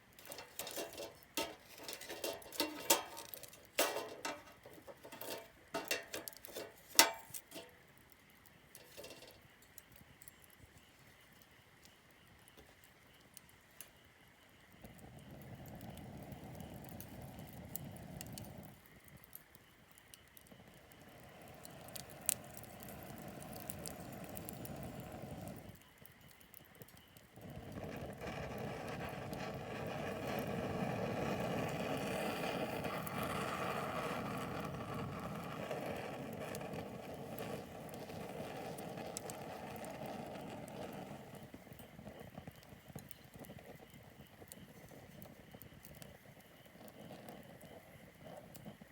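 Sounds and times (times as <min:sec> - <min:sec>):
campfire crackling and popping: 0:00.0 - 0:48.9.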